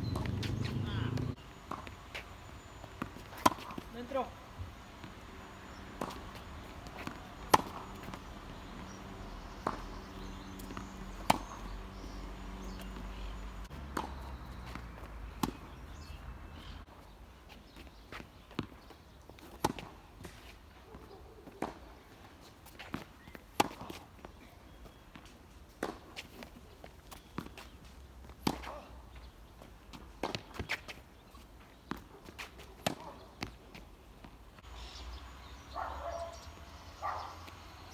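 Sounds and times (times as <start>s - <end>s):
tennis racket hitting balls: 0.0s - 2.0s, 2.8s - 16.3s, 22.7s - 24.0s, 28.3s - 28.8s, 31.8s - 34.4s.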